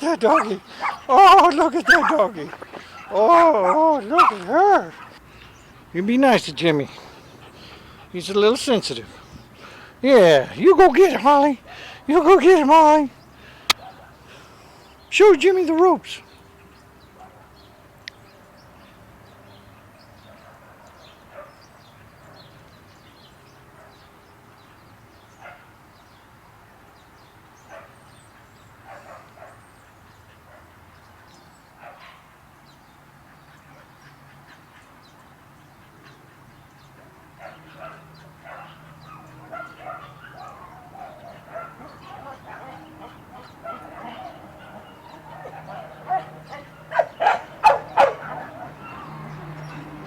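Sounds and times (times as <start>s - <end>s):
faint dog barks and yips: 0.0s - 5.2s, 13.7s - 14.2s, 17.1s - 17.7s, 20.2s - 22.6s, 25.3s - 25.8s, 27.6s - 32.4s, 35.8s - 50.0s.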